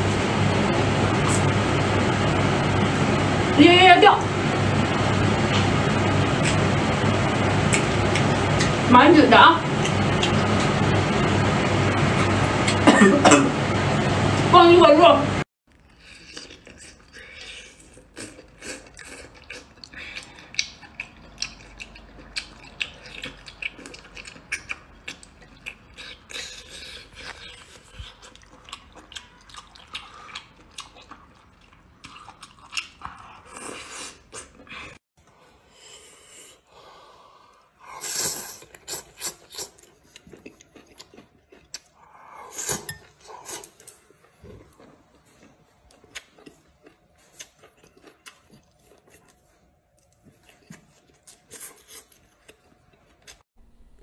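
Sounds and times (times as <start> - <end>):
wet mouth clicks while chewing: 15.9 - 33.6, 42.6 - 49.4.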